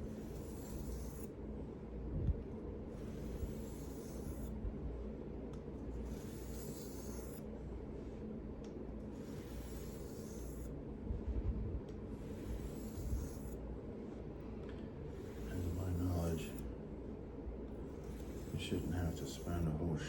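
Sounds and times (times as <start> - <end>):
knife scraping on whetstone: 0.0 - 1.3, 3.0 - 4.5, 6.1 - 7.5, 9.2 - 10.7, 12.2 - 13.6, 17.9 - 19.8
steady low hum: 0.0 - 20.0.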